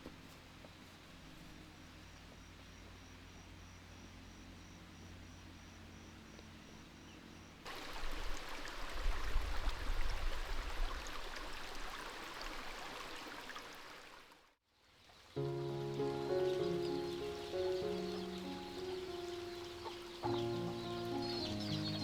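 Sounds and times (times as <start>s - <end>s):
crickets chirping: 0.7s - 7.6s, 15.4s - 22.0s
rushing water: 7.6s - 22.0s.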